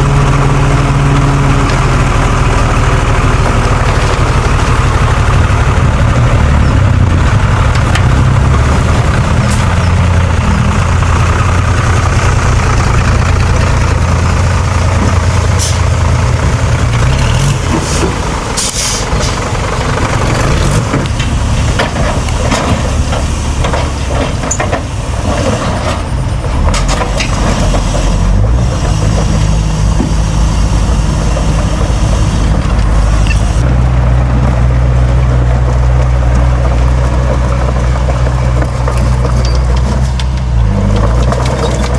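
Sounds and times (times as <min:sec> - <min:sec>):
diesel earthmoving machinery running: 0:00.0 - 0:41.9
machinery hisses: 0:17.8 - 0:19.6
machinery clanks: 0:36.3 - 0:41.9.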